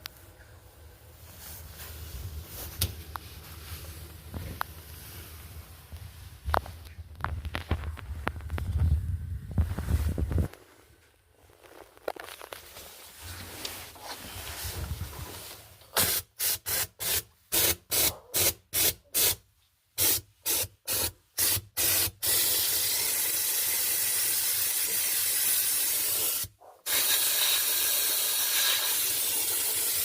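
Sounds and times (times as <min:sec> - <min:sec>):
pressurised spray hissing: 0:16.0 - 0:19.4, 0:20.0 - 0:30.0.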